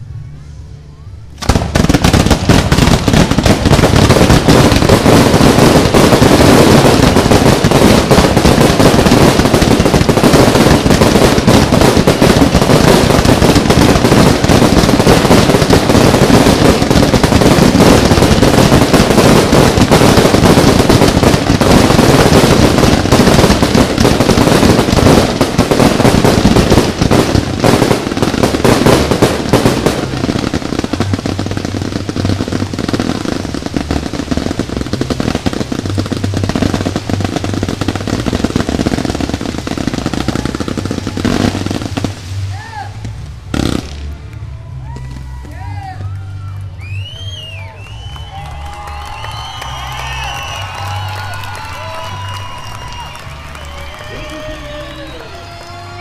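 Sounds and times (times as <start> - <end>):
fireworks exploding and crackling: 1.2 - 56.0.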